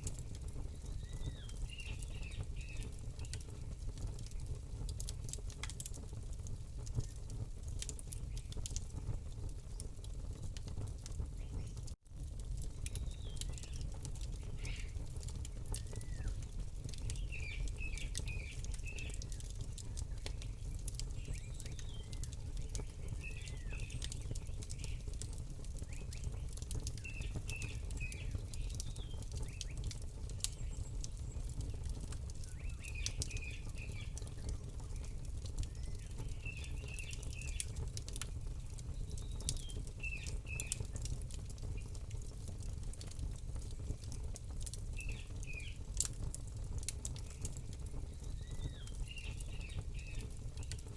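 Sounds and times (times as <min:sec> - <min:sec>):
campfire crackling and popping: 0:00.0 - 0:50.9
small bird chirping: 0:00.7 - 0:03.5, 0:14.4 - 0:15.0, 0:17.0 - 0:25.1, 0:32.4 - 0:37.8.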